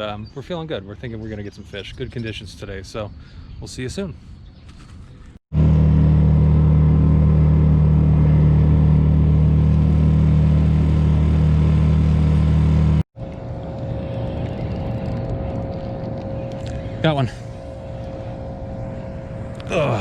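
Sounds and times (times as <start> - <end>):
boat engine running: 5.5 - 20.0
quiet motor hum: 5.6 - 20.0.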